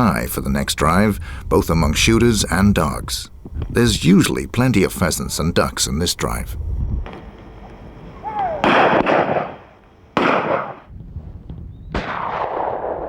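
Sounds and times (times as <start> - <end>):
shotgun shots echoing: 8.3 - 10.9, 11.9 - 13.0.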